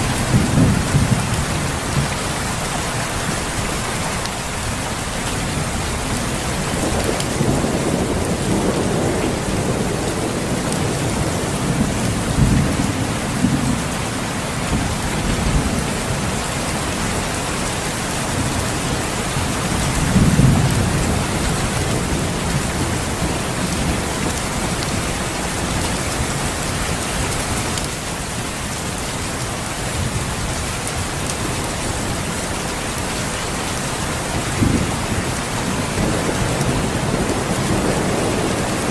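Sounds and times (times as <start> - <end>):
thunder rumbling: 0.0 - 2.2, 5.4 - 17.3, 18.3 - 26.8, 33.9 - 38.9
steady rain: 0.0 - 38.9.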